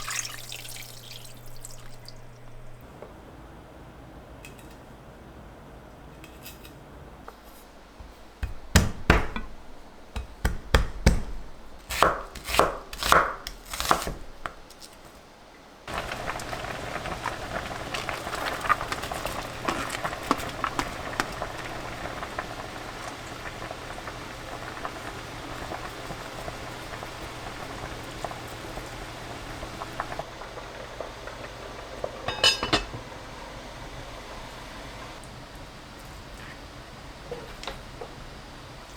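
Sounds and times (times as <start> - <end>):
steady hiss: 15.9 - 32.1.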